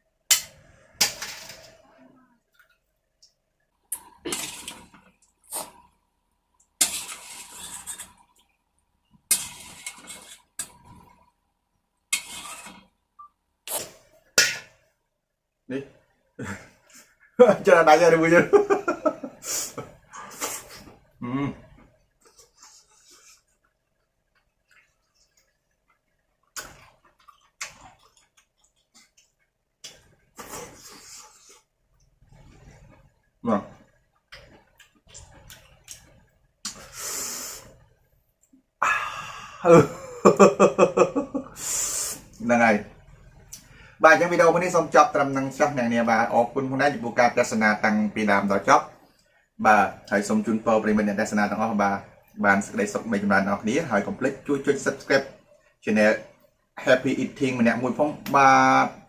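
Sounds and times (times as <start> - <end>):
loud eating mouth sounds: 13.7 - 14.0
seafood crunching and cracking: 26.4 - 30.2.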